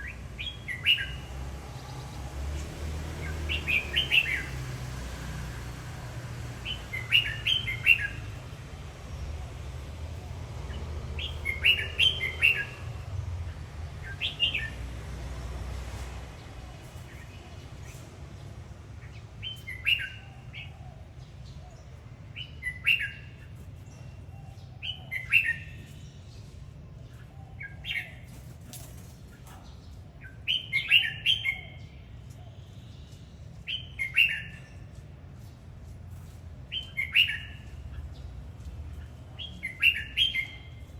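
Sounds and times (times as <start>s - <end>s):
bulbul singing: 0.0s - 2.3s, 3.0s - 5.0s, 6.4s - 15.1s, 39.1s - 40.9s.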